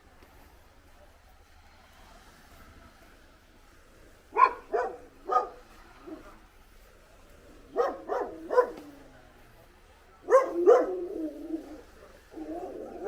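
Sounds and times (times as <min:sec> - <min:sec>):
dog barking: 0:04.3 - 0:06.2, 0:07.7 - 0:08.9, 0:10.2 - 0:11.1.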